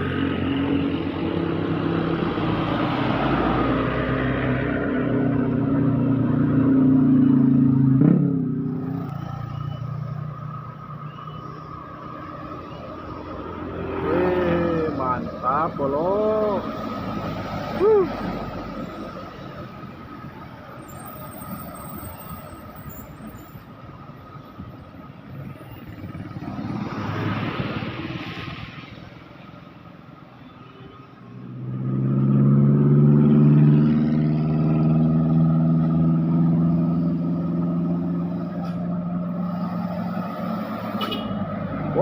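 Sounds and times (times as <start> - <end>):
vehicle passing: 0.0 - 11.0, 11.6 - 20.4, 25.8 - 29.9, 31.4 - 42.0.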